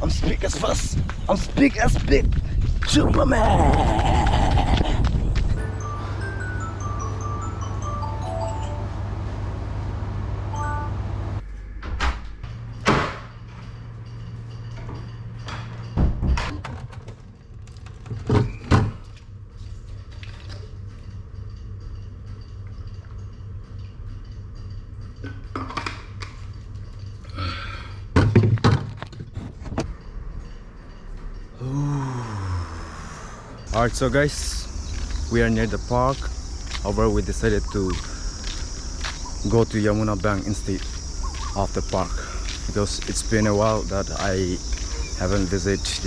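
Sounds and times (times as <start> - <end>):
steady low hum: 0.0 - 16.5, 29.0 - 46.0
dull thumps and knocks: 28.2 - 30.0.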